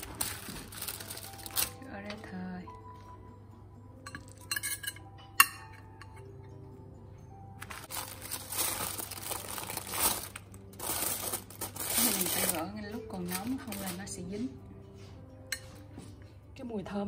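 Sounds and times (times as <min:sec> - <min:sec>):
foil crinkling and rustling: 0:00.0 - 0:01.8, 0:07.6 - 0:14.1
soft background music: 0:00.0 - 0:17.0
clinks against china plate: 0:04.1 - 0:06.3.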